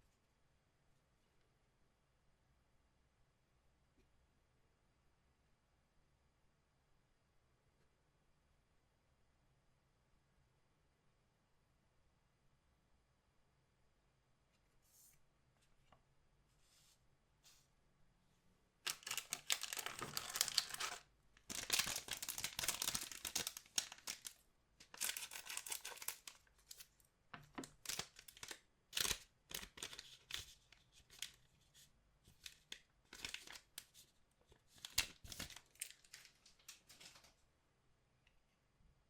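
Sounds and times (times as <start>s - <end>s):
foil wrapper tearing: 18.9s - 26.8s, 27.7s - 31.3s, 32.5s - 33.8s
wrapper crackling: 18.9s - 26.9s, 27.6s - 31.4s, 32.4s - 33.9s, 34.7s - 37.3s.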